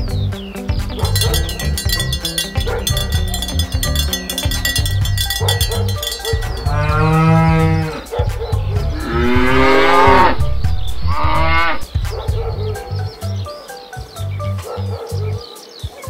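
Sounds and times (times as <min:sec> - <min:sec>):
music with bass and percussion: 0:00.0 - 0:16.0
cow mooing: 0:05.3 - 0:08.1, 0:08.9 - 0:10.4, 0:11.0 - 0:11.8.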